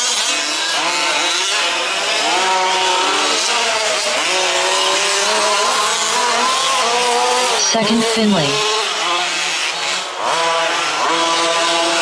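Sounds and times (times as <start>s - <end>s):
small engines buzzing: 0.0s - 12.0s.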